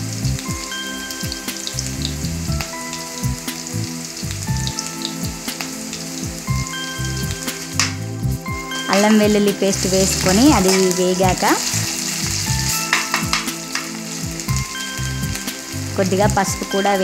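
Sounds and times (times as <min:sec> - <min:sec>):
onions sizzling in hot oil: 0:00.0 - 0:17.0
small oil pops: 0:07.7 - 0:08.0.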